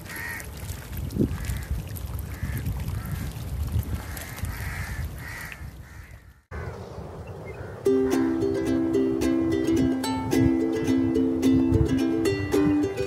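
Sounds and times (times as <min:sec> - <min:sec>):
birds calling: 0:04.0 - 0:08.5.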